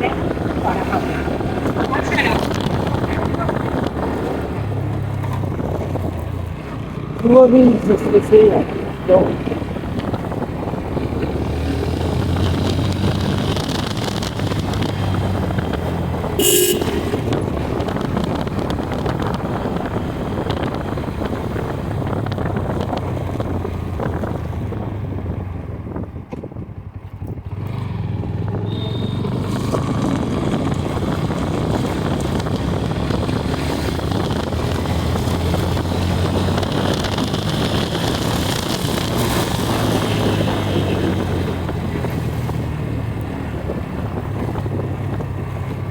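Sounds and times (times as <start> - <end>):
motorcycle engine running: 0.0 - 45.9
traffic noise: 0.0 - 45.9
vehicle horn toot: 16.4 - 17.6, 28.6 - 29.5.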